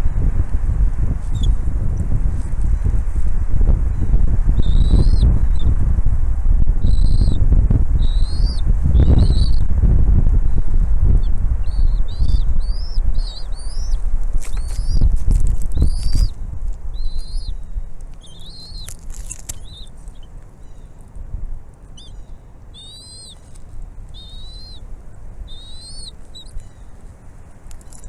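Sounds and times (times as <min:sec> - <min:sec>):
eagles whistled calls: 0:04.6 - 0:05.2, 0:06.9 - 0:07.4, 0:08.0 - 0:09.6, 0:11.7 - 0:15.0, 0:17.0 - 0:20.9, 0:22.0 - 0:23.4, 0:24.1 - 0:24.8, 0:25.5 - 0:26.9.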